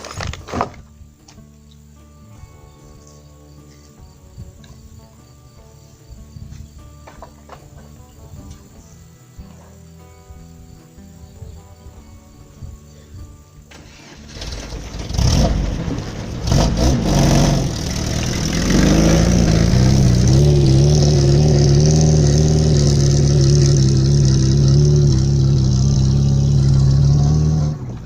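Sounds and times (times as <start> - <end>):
engine revving: 13.7 - 28.0.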